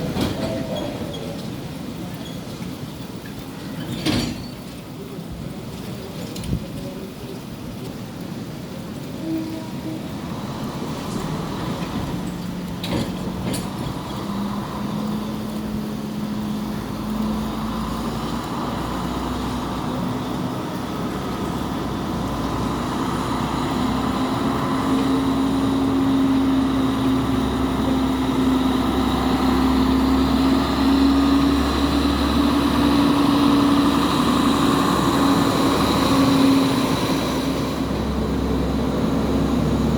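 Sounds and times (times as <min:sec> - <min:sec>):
train diesel engine running: 0:00.0 - 0:06.1, 0:07.7 - 0:39.9.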